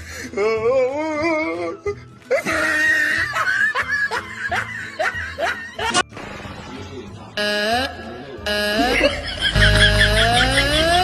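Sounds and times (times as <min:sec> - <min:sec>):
music: 0:00.0 - 0:11.0
laughter: 0:02.3 - 0:06.0, 0:08.8 - 0:11.0.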